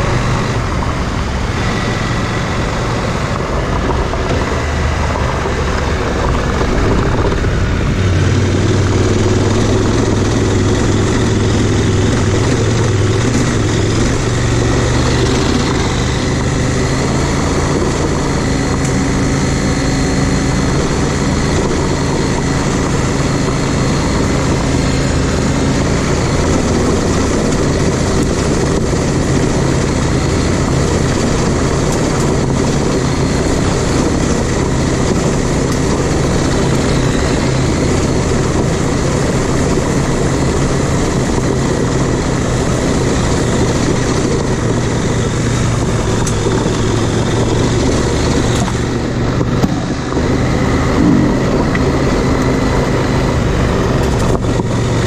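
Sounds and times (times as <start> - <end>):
motorcycle engine running: 0.0 - 55.0
wind noise: 0.0 - 55.0.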